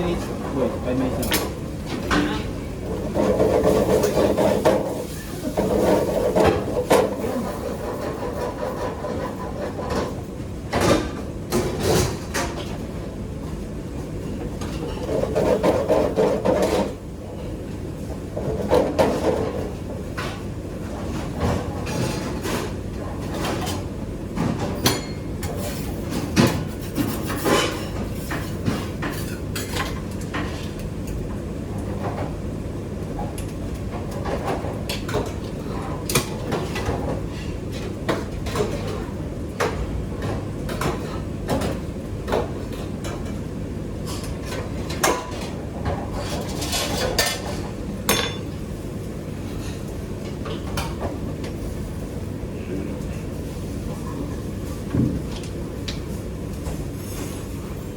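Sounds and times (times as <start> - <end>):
utensils and dishes clattering: 0.0 - 12.8, 21.0 - 31.2, 44.0 - 48.6.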